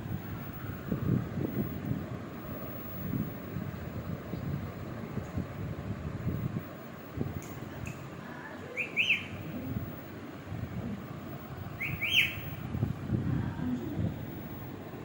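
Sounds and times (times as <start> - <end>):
parrot whistling: 8.8 - 9.4, 11.8 - 12.5.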